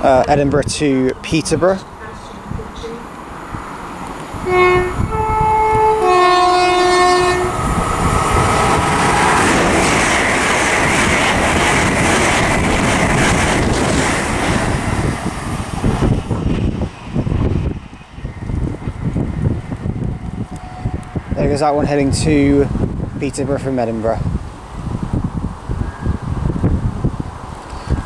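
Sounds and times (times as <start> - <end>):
train passing at speed: 0.0 - 28.0
two-tone train horn: 4.4 - 7.6, 20.4 - 21.2.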